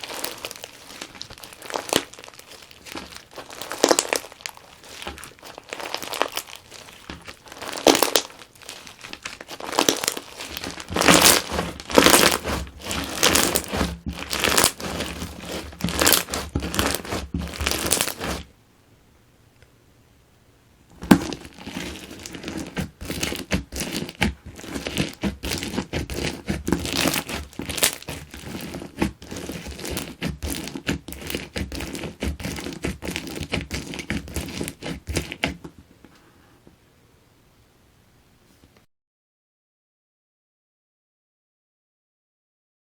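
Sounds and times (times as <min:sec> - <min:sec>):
bead slime crackling when squeezed: 0:00.0 - 0:18.5, 0:21.0 - 0:31.4.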